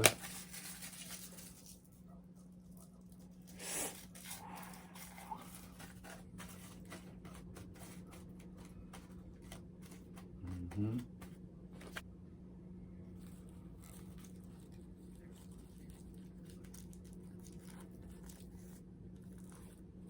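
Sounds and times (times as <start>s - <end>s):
rolling paper rustling: 0.0s - 12.0s
low electrical hum: 0.0s - 20.0s.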